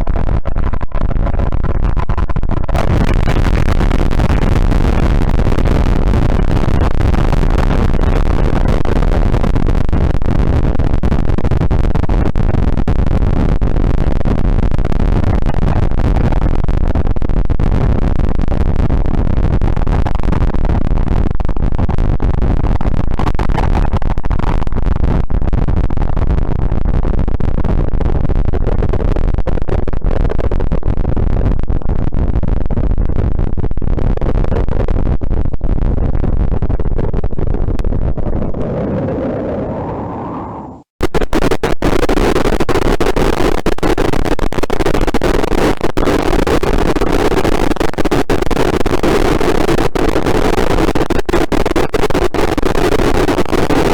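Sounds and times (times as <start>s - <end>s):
rumbling noise music: 38.4s - 40.9s.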